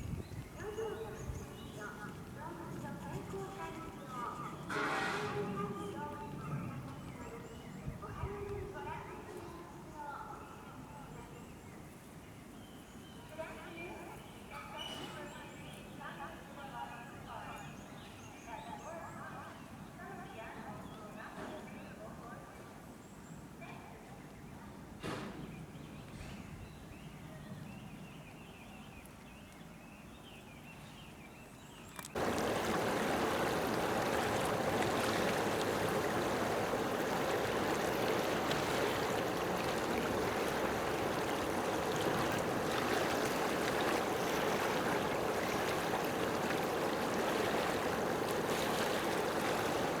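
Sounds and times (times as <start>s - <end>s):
steady rushing noise: 32.2s - 50.0s.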